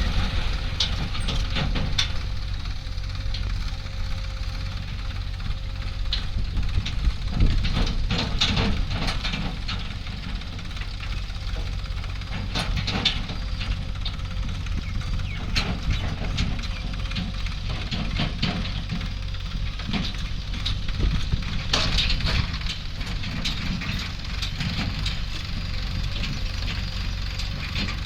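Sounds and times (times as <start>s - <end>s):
diesel machinery rumbling: 0.0s - 28.0s
sharp metal clanks and knocks: 6.1s - 10.6s, 15.2s - 19.2s, 19.8s - 28.0s.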